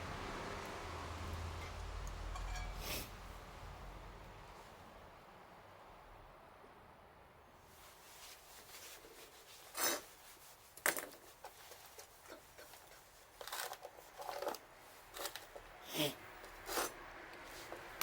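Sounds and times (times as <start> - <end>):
rustling and crunching handling: 7.6 - 18.0.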